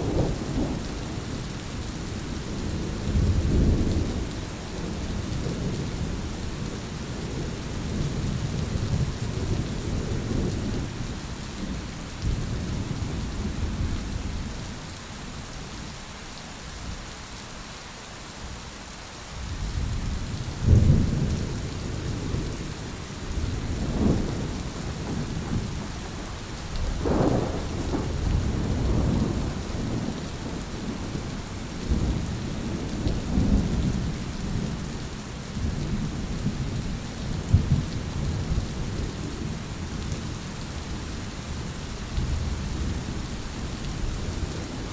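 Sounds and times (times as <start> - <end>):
rain hiss: 0.0 - 44.9
rolling thunder: 19.7 - 34.9, 35.6 - 39.6
sharp thunder claps: 27.0 - 30.2.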